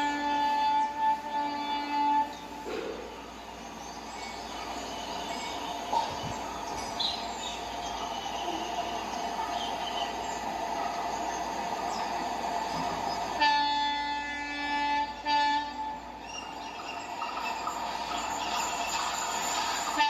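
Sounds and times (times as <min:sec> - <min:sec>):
locomotive horn blasts: 0:00.0 - 0:02.6, 0:13.4 - 0:16.1
train rumble and rail noise: 0:00.0 - 0:20.0.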